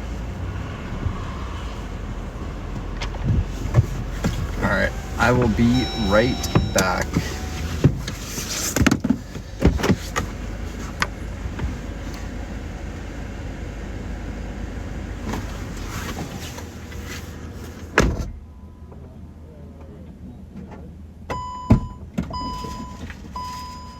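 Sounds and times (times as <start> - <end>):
car door shutting: 2.8 - 10.4, 17.8 - 18.4.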